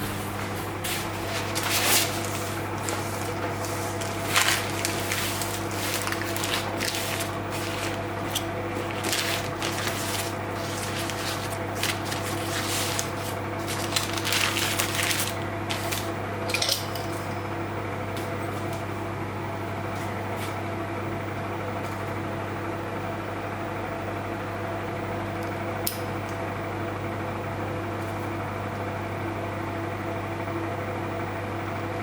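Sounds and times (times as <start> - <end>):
low appliance hum: 0.0 - 32.0
dishes and utensils clinking: 16.5 - 17.7.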